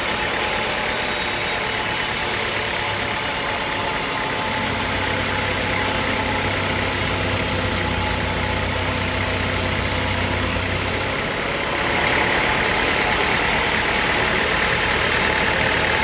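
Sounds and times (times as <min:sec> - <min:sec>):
high hissing whine: 0:00.0 - 0:11.0
sawmill machinery hum: 0:00.0 - 0:16.0.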